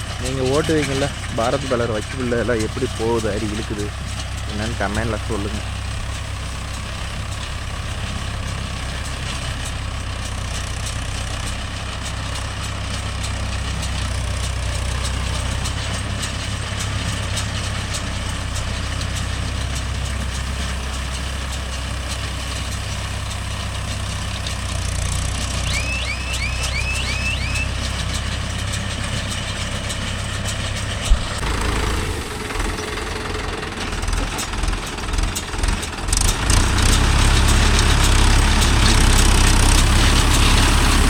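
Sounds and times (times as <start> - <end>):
tractor engine running: 0.0 - 41.0
quick high chirps: 25.6 - 27.8.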